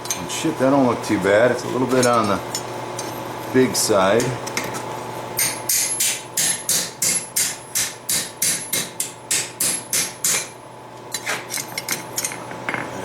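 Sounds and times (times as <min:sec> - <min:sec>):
hammer striking steel on anvil: 0:05.4 - 0:10.6.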